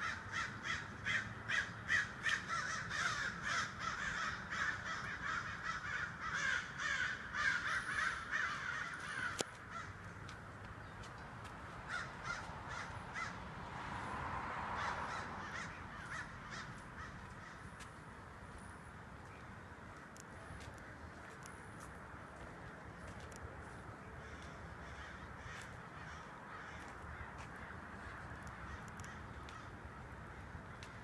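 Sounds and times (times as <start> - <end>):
crows cawing: 0.0 - 10.2, 11.8 - 13.6, 14.6 - 17.9, 24.2 - 31.0.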